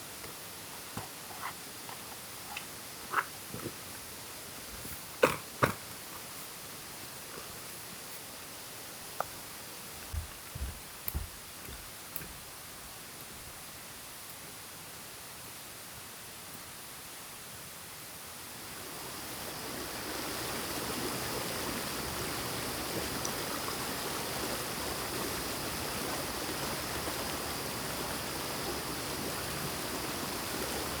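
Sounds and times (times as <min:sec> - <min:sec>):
stream flowing over rocks: 0:18.8 - 0:31.0.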